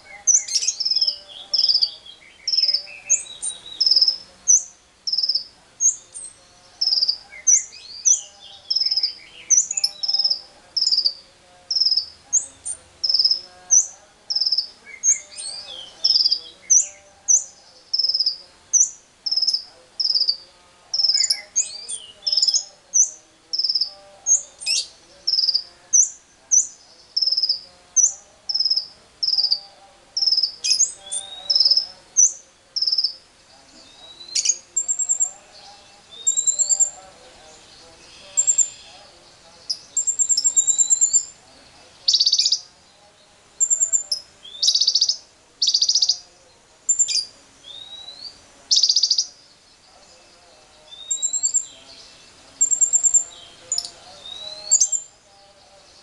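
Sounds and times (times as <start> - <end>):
faint lower bird calls: 0.0 - 41.4, 46.9 - 56.0
bird sharp high chirp: 46.9 - 49.3, 50.9 - 51.7.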